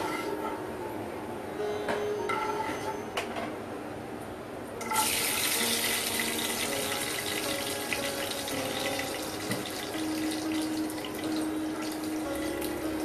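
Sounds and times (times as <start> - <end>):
nuts sizzling in hot oil: 4.8 - 11.0.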